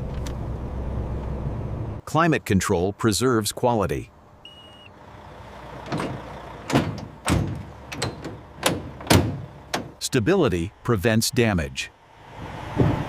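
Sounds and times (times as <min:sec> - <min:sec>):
truck engine rumbling: 0:03.8 - 0:13.0
sharp clunks and knocks: 0:05.8 - 0:10.0, 0:12.7 - 0:13.0.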